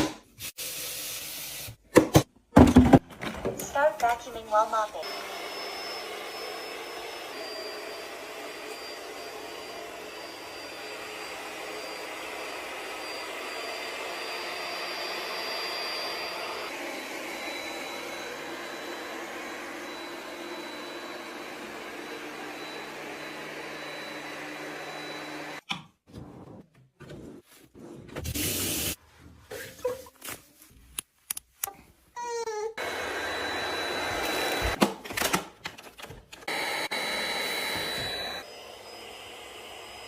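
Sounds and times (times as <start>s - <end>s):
robot vacuum running: 5.0s - 25.6s, 32.8s - 34.8s, 36.4s - 40.0s.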